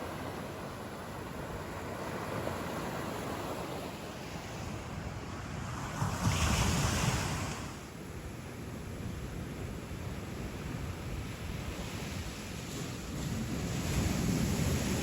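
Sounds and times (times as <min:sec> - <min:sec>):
ocean surf rushing: 0:00.0 - 0:07.9.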